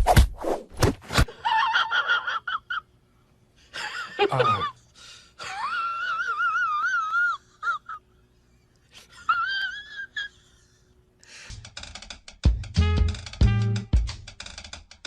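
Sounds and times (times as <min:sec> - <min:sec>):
music: 0:11.5 - 0:15.0.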